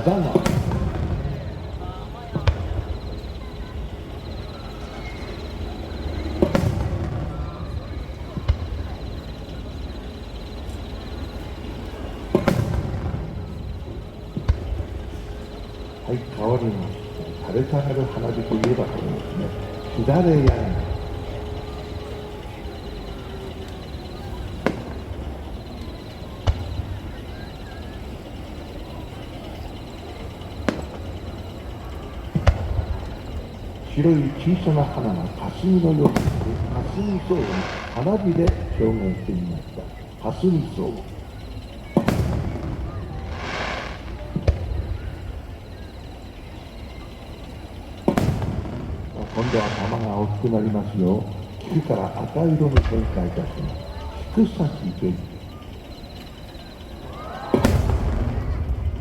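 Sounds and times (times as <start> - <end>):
fireworks bangs: 0.0 - 59.0
steady background noise: 0.0 - 59.0
steady low rumble: 0.0 - 59.0.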